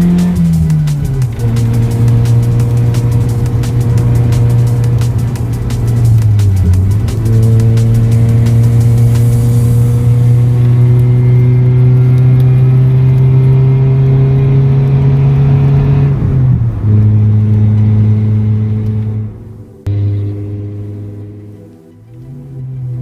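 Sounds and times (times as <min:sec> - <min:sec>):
car engine pulling under load: 0:00.0 - 0:23.0.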